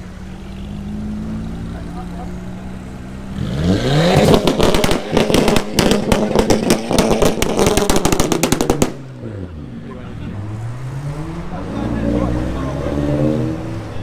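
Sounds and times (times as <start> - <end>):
car engine revving: 0.0 - 14.0
exhaust cracks and pops: 4.0 - 9.3.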